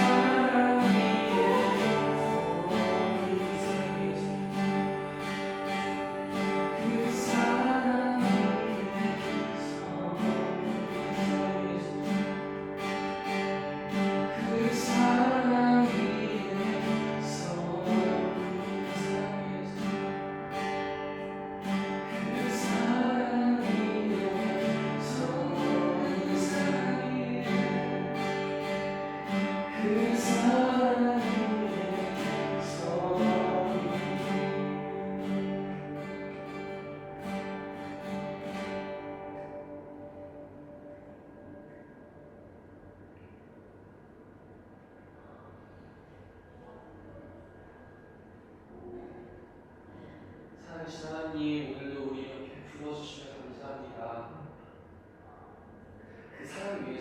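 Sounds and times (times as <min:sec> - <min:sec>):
voices singing slow song: 0:00.0 - 0:12.8, 0:13.9 - 0:20.3, 0:21.6 - 0:38.1
strummed acoustic guitar: 0:00.0 - 0:42.8.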